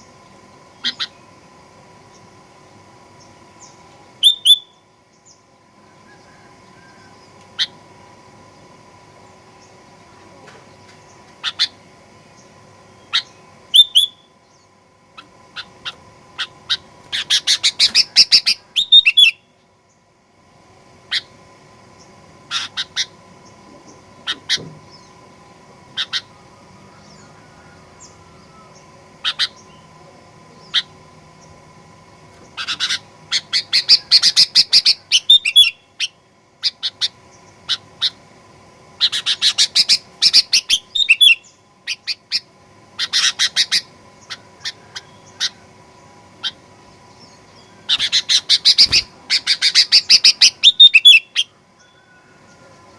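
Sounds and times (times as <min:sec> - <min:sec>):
bird calling and chattering: 0:00.8 - 0:01.3, 0:03.2 - 0:04.8, 0:07.6 - 0:07.8, 0:10.8 - 0:19.5, 0:22.5 - 0:25.3, 0:25.9 - 0:29.9, 0:32.4 - 0:38.2, 0:39.0 - 0:52.0.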